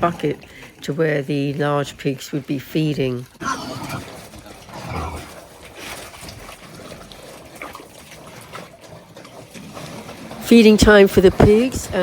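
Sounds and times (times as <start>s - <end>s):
sloshing liquid in trough: 0.0s - 12.0s
pig noises: 3.4s - 6.0s.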